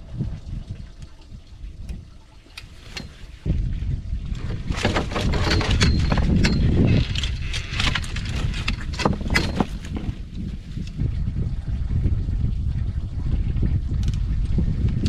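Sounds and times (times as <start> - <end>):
wind buffeting microphone: 0.0 - 15.0
fishing gear clicking and rattling: 2.5 - 3.5, 4.4 - 11.0.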